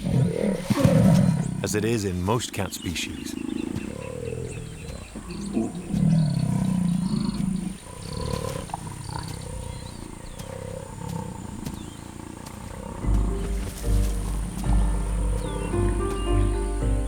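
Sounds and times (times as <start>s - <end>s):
faint birds chirping: 0.0s - 17.0s
jaguars growling: 0.0s - 17.0s
music: 13.0s - 17.0s.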